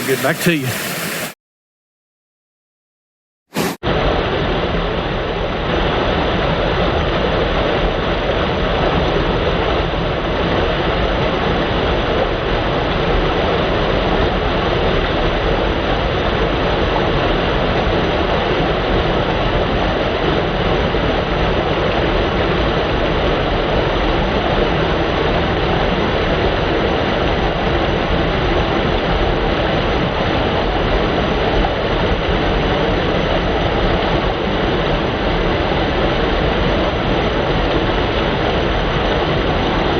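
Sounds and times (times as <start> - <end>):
waterfall rushing: 0.0 - 1.4.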